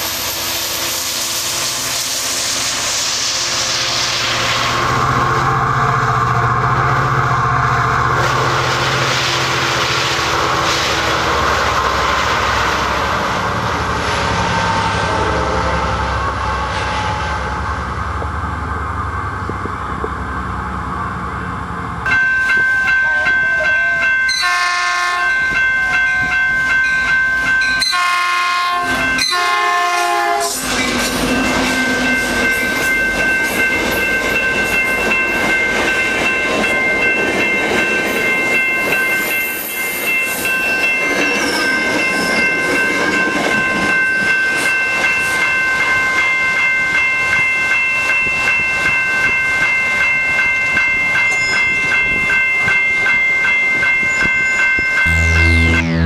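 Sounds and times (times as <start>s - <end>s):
train wheels rushing on rails: 0.0s - 54.9s
train horn blasts: 24.3s - 25.4s, 27.8s - 30.6s, 55.0s - 56.0s
high ringing tone: 51.1s - 56.0s.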